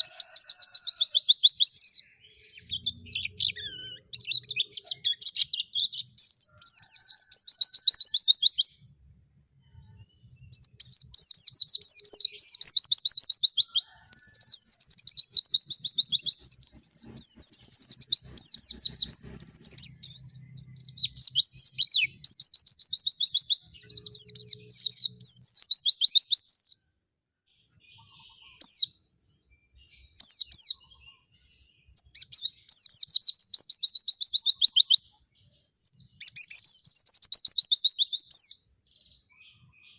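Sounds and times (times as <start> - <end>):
bird single chirps: 0.0 - 26.8
bird twittering trills: 0.0 - 26.8.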